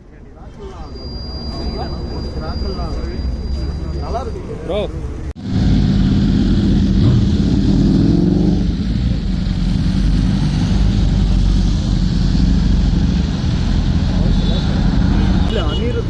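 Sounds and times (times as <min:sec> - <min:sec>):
motorcycle engine revving: 0:05.4 - 0:15.5.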